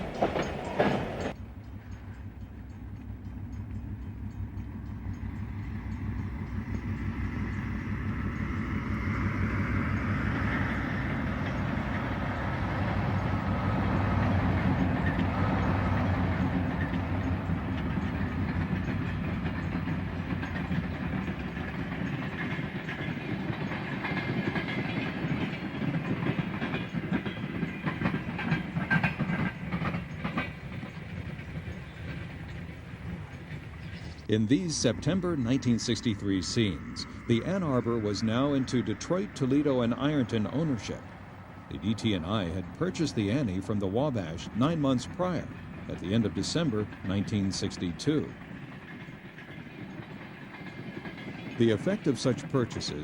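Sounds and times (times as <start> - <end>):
diesel locomotive rumbling: 0.0 - 53.0
train wheels clicking on rail joints: 0.0 - 53.0.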